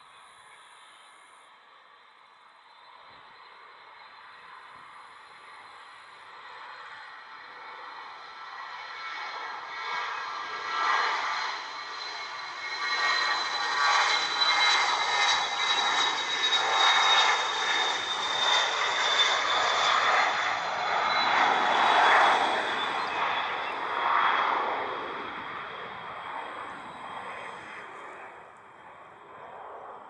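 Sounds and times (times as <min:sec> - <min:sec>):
jet engines whining: 0:07.3 - 0:30.0.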